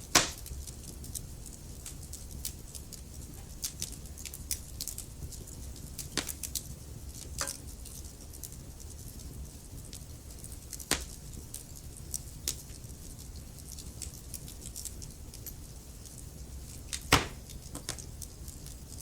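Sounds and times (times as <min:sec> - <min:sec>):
loud fire pops: 0:00.0 - 0:07.7, 0:09.8 - 0:12.8, 0:16.8 - 0:18.4
low steady fire rumble: 0:00.0 - 0:19.0
wood fire crackling: 0:00.0 - 0:19.0.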